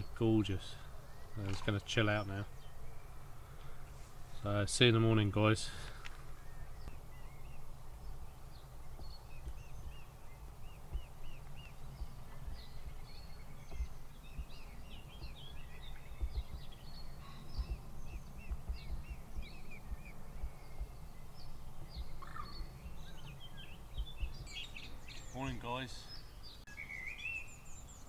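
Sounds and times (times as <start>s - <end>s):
wild birds singing and chirping: 0.0s - 28.0s
steady low rumble: 6.3s - 25.1s.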